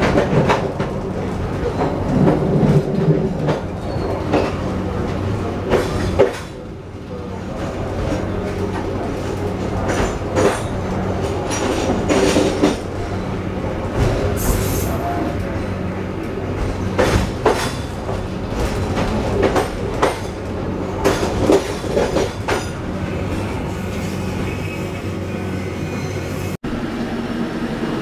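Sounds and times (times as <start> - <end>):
train wheels clacking over rail joints: 0.0 - 6.6, 7.5 - 24.1
high wheel squeal: 23.5 - 26.6.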